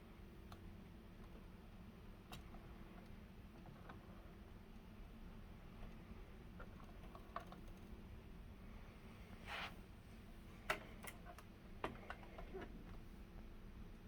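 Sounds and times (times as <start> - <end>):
low room hum: 0.0 - 14.0
soft rustle: 9.2 - 10.4.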